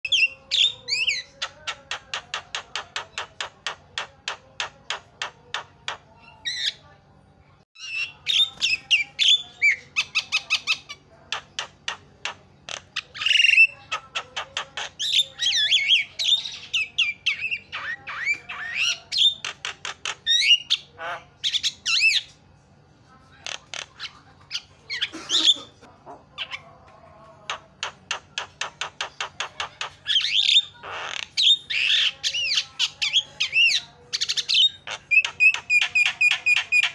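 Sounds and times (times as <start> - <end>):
myna bird calling: 27.5 - 36.9.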